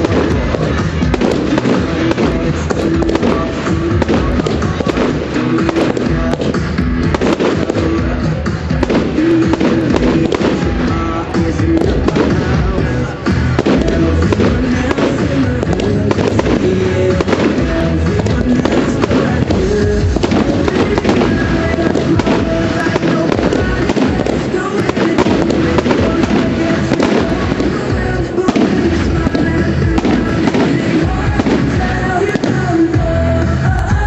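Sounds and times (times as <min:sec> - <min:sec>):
fireworks bangs and crackles: 0:00.0 - 0:34.0
loud music: 0:00.0 - 0:34.0.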